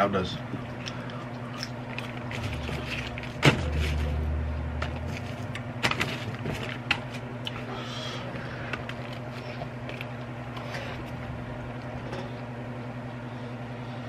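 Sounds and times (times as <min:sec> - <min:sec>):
low electrical hum: 0:00.0 - 0:14.0
close chewing of food: 0:00.6 - 0:12.5.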